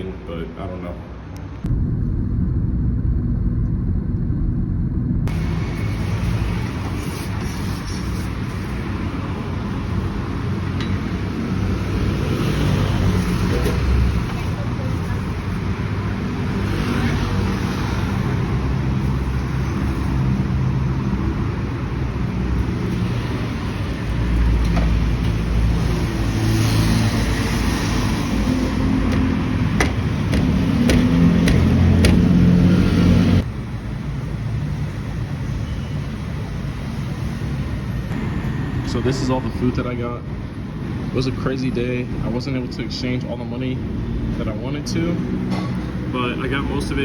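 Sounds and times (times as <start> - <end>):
vehicle engines passing: 5.2 - 35.1.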